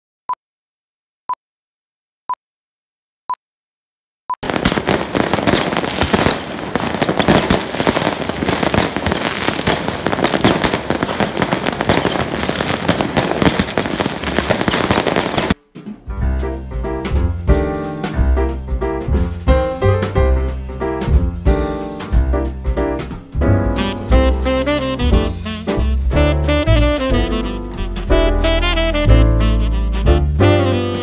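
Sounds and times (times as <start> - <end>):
fireworks bangs and crackling: 4.4 - 15.6, 20.0 - 28.7
music: 15.6 - 31.0.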